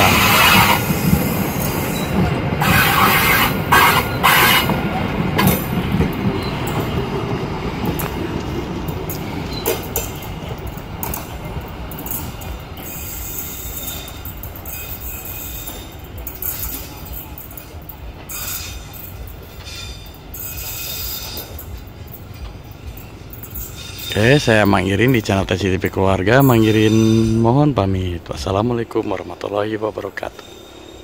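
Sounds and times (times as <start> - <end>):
wheel squeals: 0.0 - 7.1, 9.1 - 25.1
train wheels rumbling and clanking: 0.0 - 31.0.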